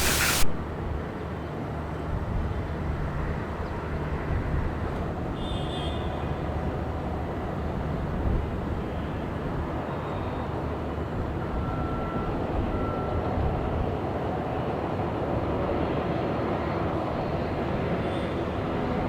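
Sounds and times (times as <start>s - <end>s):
jet airliner engine noise: 0.0s - 0.7s.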